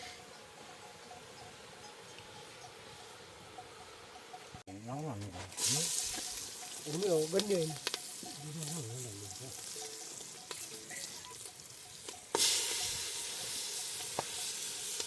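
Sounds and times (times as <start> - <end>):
food sizzling in hot oil: 5.5 - 15.0.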